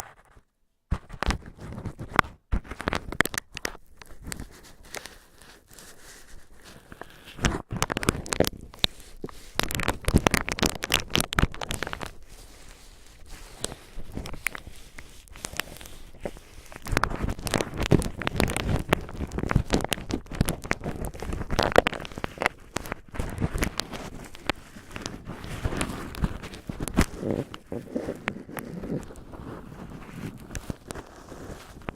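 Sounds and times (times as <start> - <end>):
cotton swabs crackling and rustling: 2.8 - 31.9.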